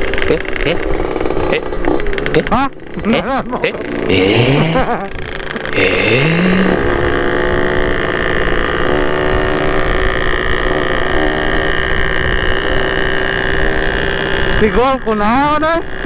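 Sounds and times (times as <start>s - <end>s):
two-stroke motorcycle engine: 0.0s - 16.0s.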